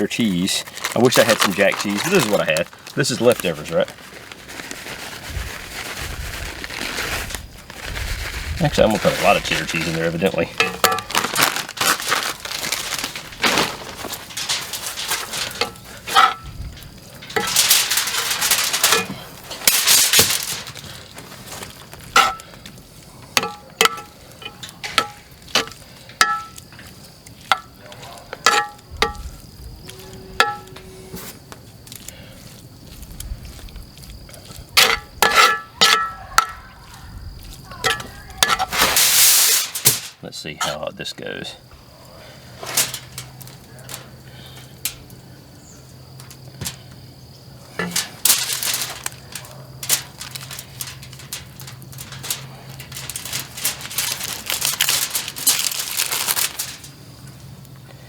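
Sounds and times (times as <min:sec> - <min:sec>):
rustling scrapes: 0:00.6 - 0:22.6, 0:28.4 - 0:31.5, 0:37.5 - 0:40.2, 0:42.5 - 0:44.2, 0:47.7 - 0:57.0.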